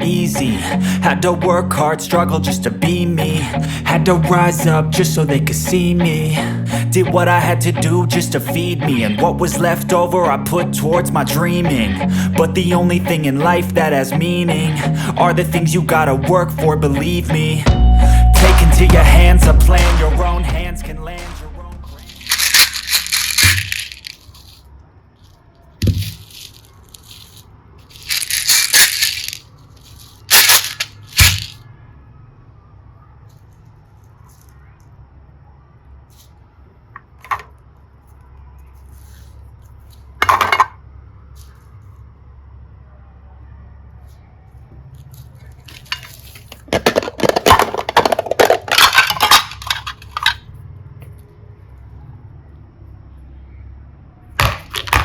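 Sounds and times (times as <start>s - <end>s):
slime crackling and rattling: 21.9s - 24.6s, 25.3s - 31.6s.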